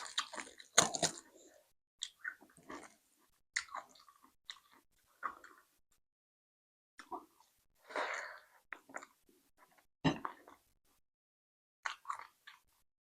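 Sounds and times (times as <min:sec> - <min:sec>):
chewing food close-up: 0:00.0 - 0:01.4, 0:02.0 - 0:05.7, 0:11.8 - 0:12.8.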